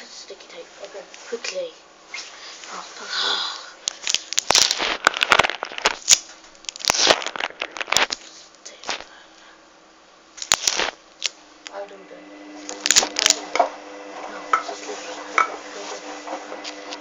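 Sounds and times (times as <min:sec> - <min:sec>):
sticky tape crackling: 0:03.9 - 0:09.1, 0:10.4 - 0:11.4, 0:12.6 - 0:13.6.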